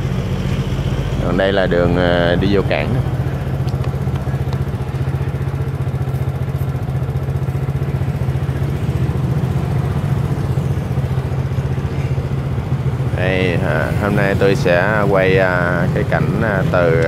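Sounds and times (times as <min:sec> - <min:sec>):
small motorcycle engine idling: 0:00.0 - 0:17.0.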